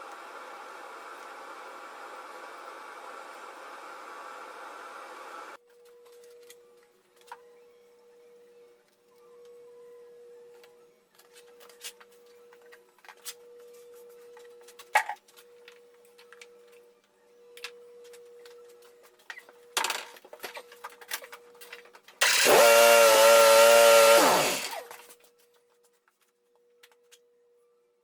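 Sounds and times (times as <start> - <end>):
power tool motor running: 22.2 - 25.0.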